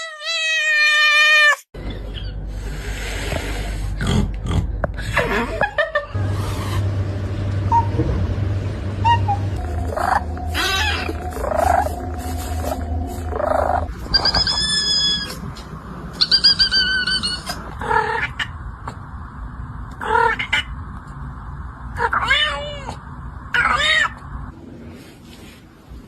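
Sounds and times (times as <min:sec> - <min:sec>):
cat mewing: 0:09.2 - 0:11.9.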